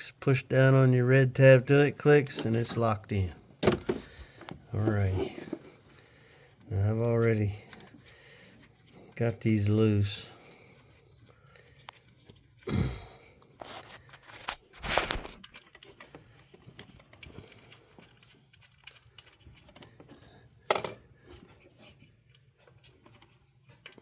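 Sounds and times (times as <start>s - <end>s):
plastic and bolts rattling: 1.6s - 6.0s, 18.9s - 24.0s.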